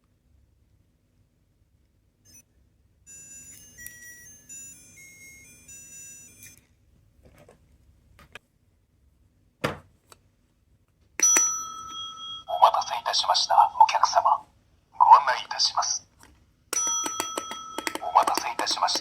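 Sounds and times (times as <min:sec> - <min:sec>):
toy beeping melody: 0:02.3 - 0:02.5, 0:03.1 - 0:06.7, 0:16.8 - 0:19.0
toy clicks: 0:16.7 - 0:19.0.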